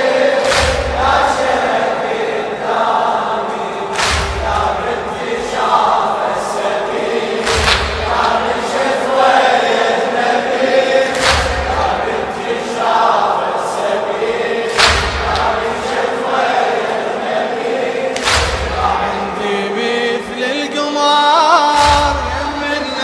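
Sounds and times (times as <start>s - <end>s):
crowd chanting in unison: 0.0s - 23.0s
massed chest-beating slaps: 0.3s - 1.9s, 3.9s - 5.8s, 6.6s - 9.4s, 10.6s - 12.6s, 14.6s - 16.1s, 18.1s - 19.1s, 21.8s - 22.5s.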